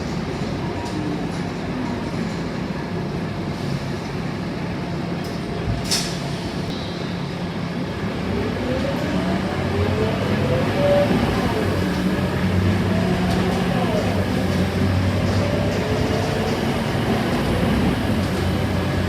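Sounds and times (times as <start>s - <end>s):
bus diesel engine: 7.8s - 19.0s
road noise: 7.8s - 19.0s.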